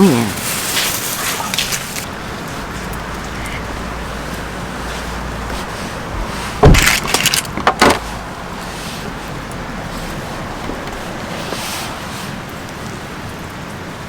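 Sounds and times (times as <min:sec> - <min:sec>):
loud clattering knocks: 0:03.1 - 0:08.4.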